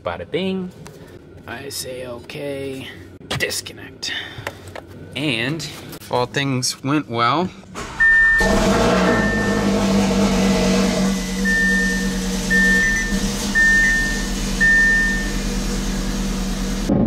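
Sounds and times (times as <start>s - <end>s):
car engine idling: 7.8s - 16.9s
dashboard warning chime beeps: 8.0s - 10.1s, 11.0s - 15.6s.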